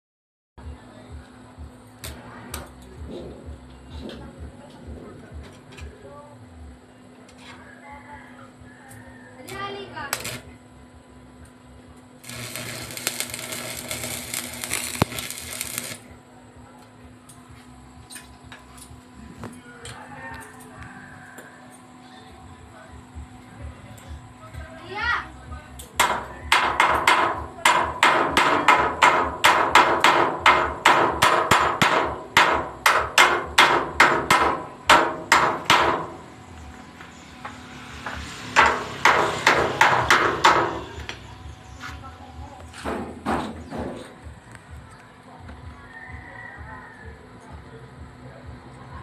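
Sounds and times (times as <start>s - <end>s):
electric arc crackling: 9.7s - 10.6s, 12.2s - 16.1s
electric arc snap: 10.0s - 10.5s, 12.2s - 16.1s
hammer striking metal: 26.0s - 36.3s, 38.2s - 41.2s.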